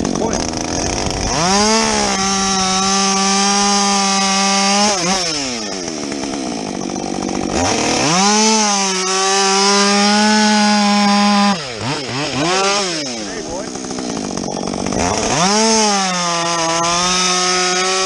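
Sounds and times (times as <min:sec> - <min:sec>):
chainsaw revving: 0:00.0 - 0:18.0.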